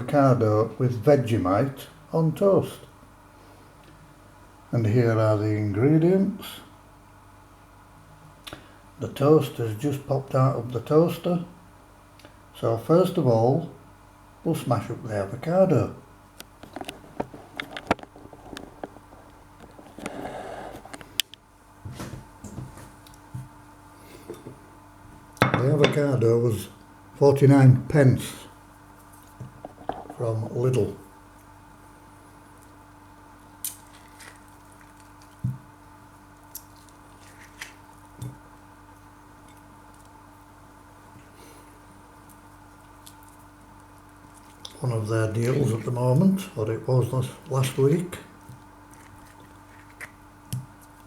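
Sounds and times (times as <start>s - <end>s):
low steady hum: 0.0s - 51.0s
avocado squishing: 33.5s - 40.2s, 48.3s - 51.0s.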